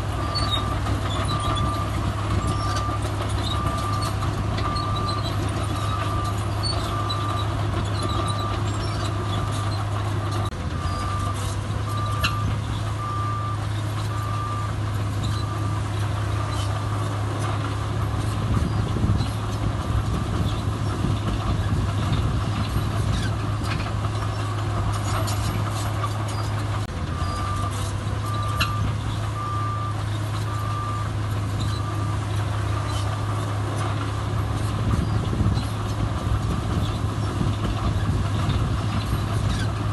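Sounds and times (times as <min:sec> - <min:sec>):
diesel machine running: 0:00.0 - 0:39.9
reversing alarm beeping: 0:00.2 - 0:08.7, 0:10.8 - 0:15.8, 0:27.1 - 0:32.2.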